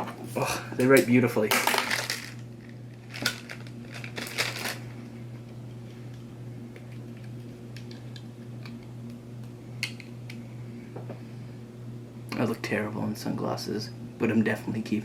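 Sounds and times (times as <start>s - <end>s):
steady hum: 0.0s - 15.0s
packaging crinkling and rustling: 1.5s - 4.9s.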